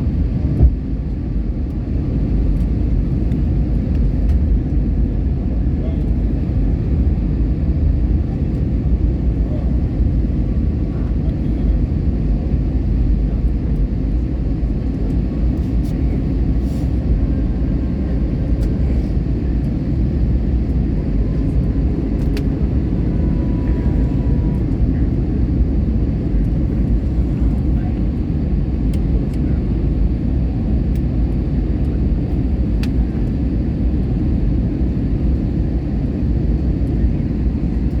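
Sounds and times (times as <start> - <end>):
jet cabin engine rumble: 0.0 - 38.0.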